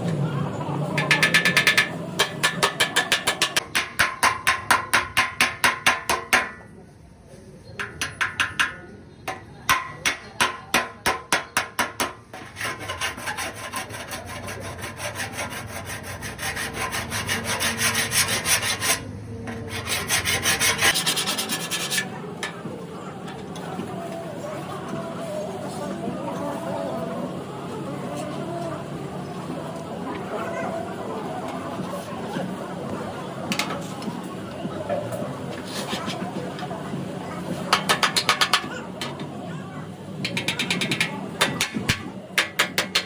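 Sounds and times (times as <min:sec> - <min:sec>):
hand sanding car body panel: 0:19.8 - 0:22.0.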